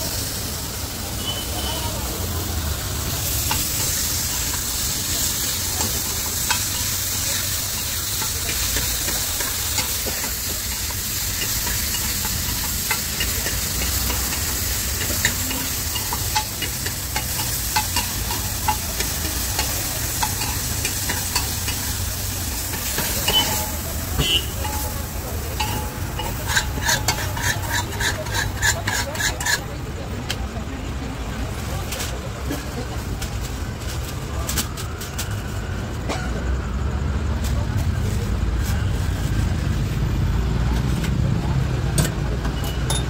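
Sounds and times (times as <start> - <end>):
food sizzling on iron griddle: 0.0 - 29.6
metal spatula scraping iron: 22.6 - 29.6.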